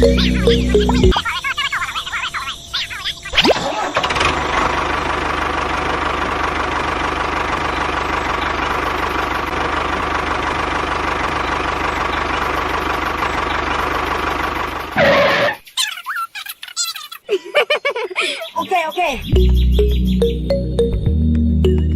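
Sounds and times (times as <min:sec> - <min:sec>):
engine idling with knocking: 0:03.9 - 0:15.4.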